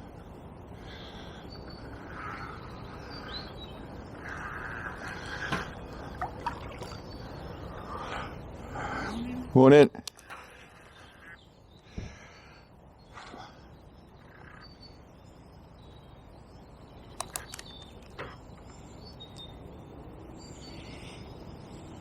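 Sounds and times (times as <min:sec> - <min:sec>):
birds calling: 0:00.0 - 0:22.0
low background rush: 0:00.0 - 0:22.0
sharp clicks: 0:17.1 - 0:18.2.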